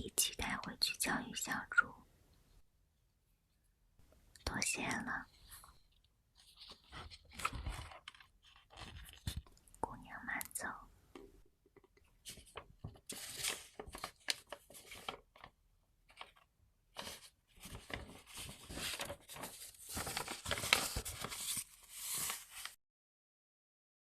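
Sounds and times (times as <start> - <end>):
paper crinkling and rustling: 5.4 - 9.6, 12.2 - 22.8.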